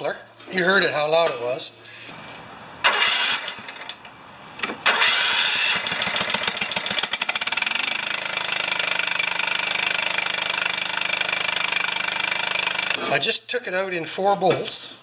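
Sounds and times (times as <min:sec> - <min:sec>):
lawn tractor engine running: 0:02.8 - 0:03.9, 0:04.8 - 0:13.0.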